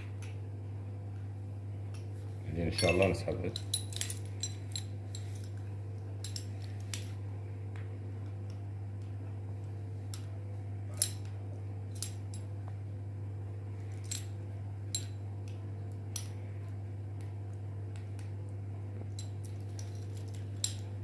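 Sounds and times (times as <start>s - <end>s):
steady low hum: 0.0s - 21.0s
metallic clicks and clinks: 2.7s - 5.6s, 6.2s - 7.0s.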